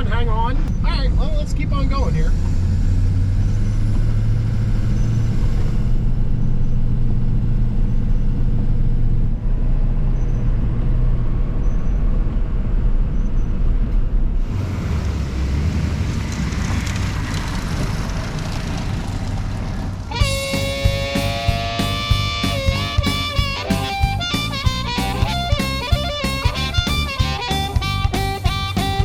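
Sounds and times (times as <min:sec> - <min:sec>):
road noise: 0:00.0 - 0:29.0
truck engine: 0:00.0 - 0:29.0
hissing rush: 0:14.4 - 0:24.2.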